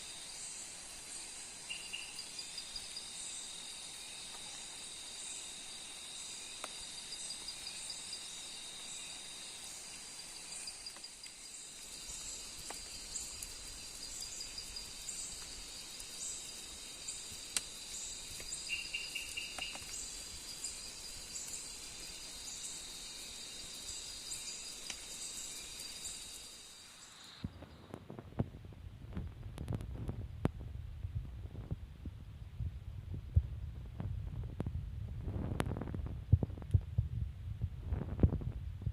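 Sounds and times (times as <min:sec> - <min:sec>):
high-pitched insect drone: 0:00.0 - 0:27.4
insect chirping: 0:00.0 - 0:27.9.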